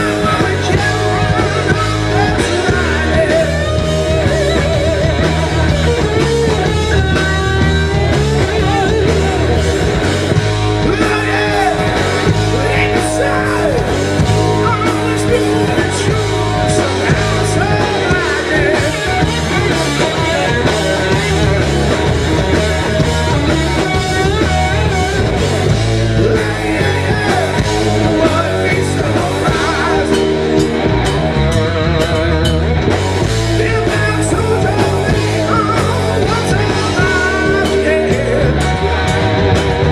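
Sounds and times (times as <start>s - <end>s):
bass guitar: 0.0s - 39.9s
drums: 0.0s - 39.9s
electric guitar: 0.0s - 39.9s
person singing: 10.8s - 22.0s, 26.1s - 30.7s, 33.5s - 38.9s.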